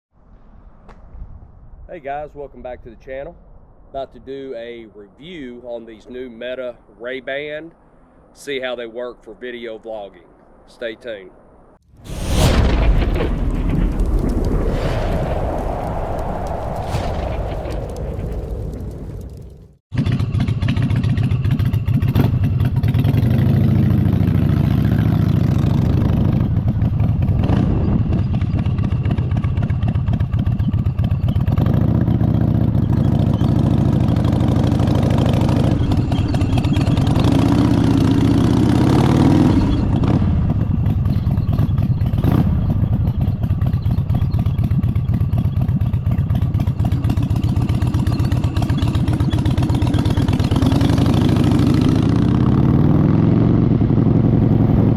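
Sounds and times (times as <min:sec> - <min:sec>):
motorcycle engine running: 0:20.0 - 0:24.4.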